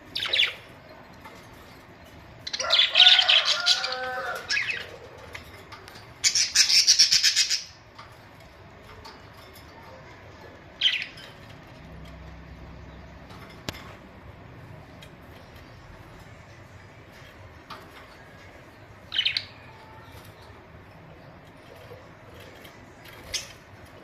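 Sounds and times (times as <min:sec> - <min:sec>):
budgerigars chattering and squawking: 0:02.4 - 0:05.4, 0:06.2 - 0:07.8.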